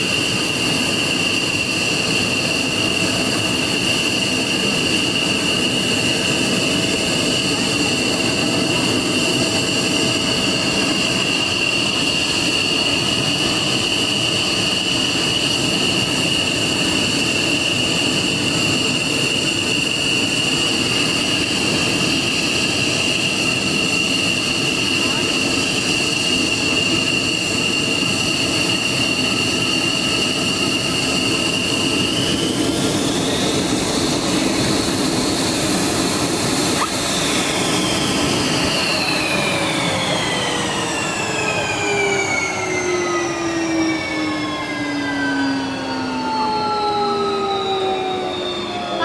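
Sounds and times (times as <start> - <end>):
jet engine running: 0.0 - 49.0.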